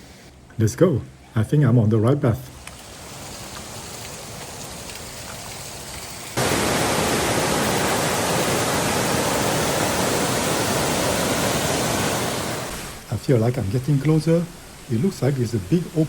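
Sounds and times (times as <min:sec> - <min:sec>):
rushing stream and waterfall: 0:02.7 - 0:16.0.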